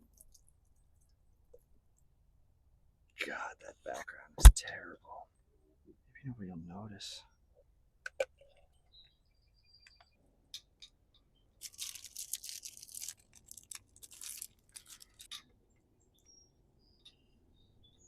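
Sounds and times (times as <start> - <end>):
crinkly rustling and scraping of parts: 11.6 - 15.6.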